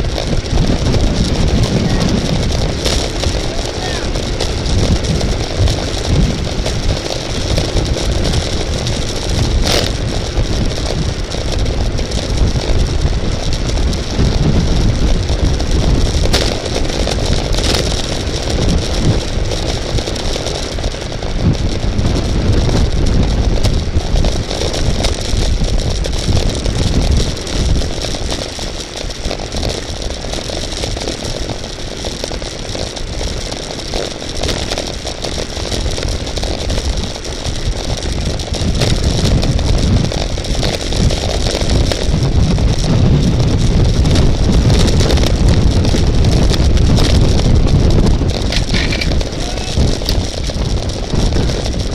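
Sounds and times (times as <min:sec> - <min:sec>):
tyre and road noise: 0:00.0 - 0:51.9
wind buffeting microphone: 0:00.0 - 0:51.9.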